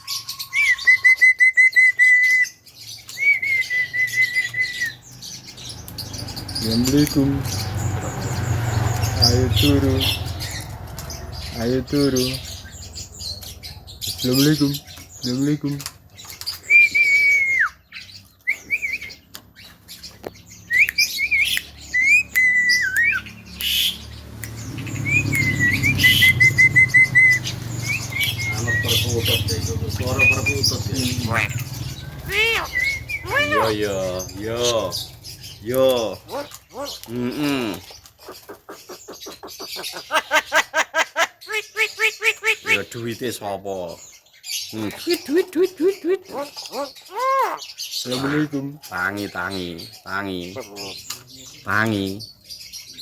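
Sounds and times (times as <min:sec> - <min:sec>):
bird whistled calls: 0:00.0 - 0:05.2, 0:16.5 - 0:19.3, 0:20.6 - 0:37.8
bird harsh squawks: 0:21.0 - 0:24.1, 0:25.0 - 0:43.2, 0:46.0 - 0:51.8.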